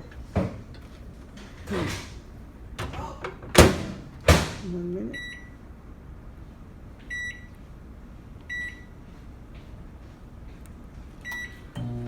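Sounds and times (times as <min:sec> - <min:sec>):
microwave humming: 0:00.0 - 0:05.3, 0:11.2 - 0:12.0
microwave keypad beeping: 0:07.1 - 0:07.5, 0:08.5 - 0:08.9, 0:11.2 - 0:12.0.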